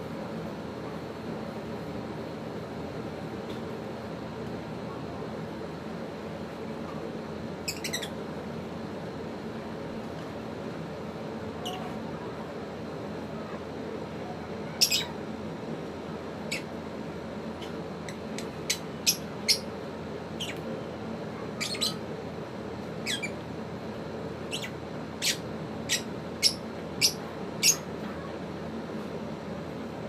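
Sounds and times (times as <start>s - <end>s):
low background hum: 0.0s - 30.0s
lovebirds chirping and squawking: 7.7s - 8.2s, 14.8s - 15.1s, 18.1s - 19.7s, 21.6s - 22.0s, 23.0s - 23.4s, 24.5s - 27.9s.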